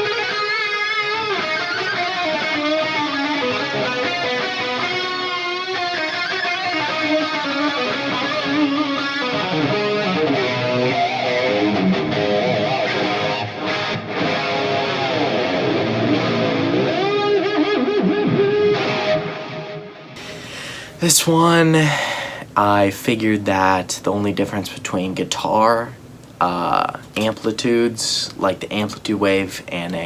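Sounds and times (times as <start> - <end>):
distorted electric guitar lead: 0.0 - 20.1.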